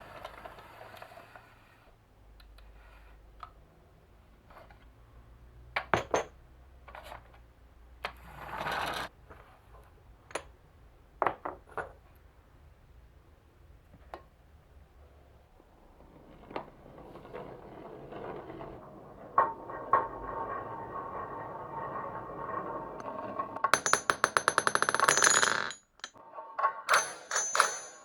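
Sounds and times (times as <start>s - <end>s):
marbles clacking: 23.8s - 26.2s.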